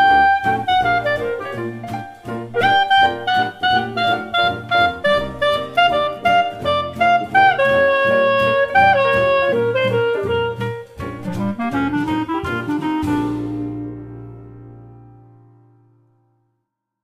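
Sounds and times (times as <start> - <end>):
light drums: 0.0 - 13.9
saxophone melody: 0.0 - 14.4
bass: 0.0 - 16.6.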